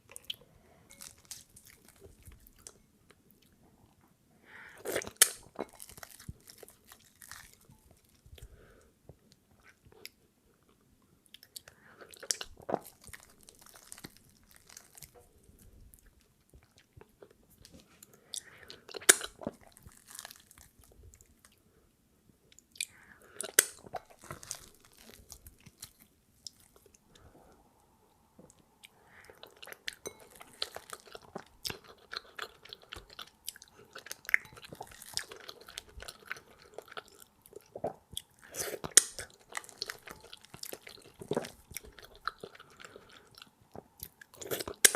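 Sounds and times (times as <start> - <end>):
wet chewing and mouth clicks: 11.3 - 21.6, 22.5 - 27.1, 28.4 - 44.9.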